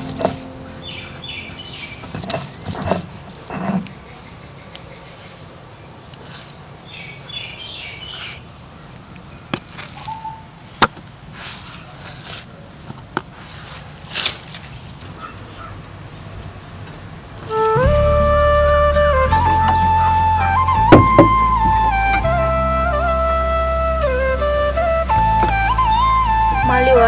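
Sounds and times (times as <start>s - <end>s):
sharp knocks: 20.7s - 21.9s.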